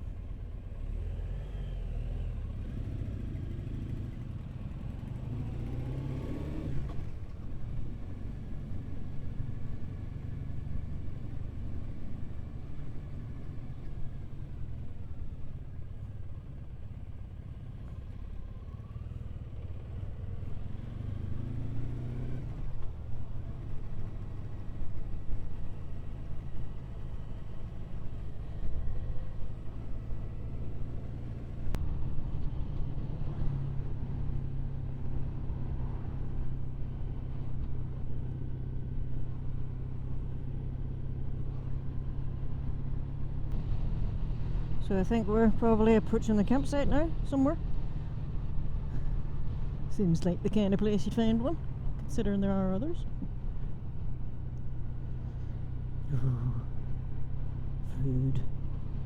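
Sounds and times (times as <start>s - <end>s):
motorcycle engine rumbling: 25.1s - 59.0s.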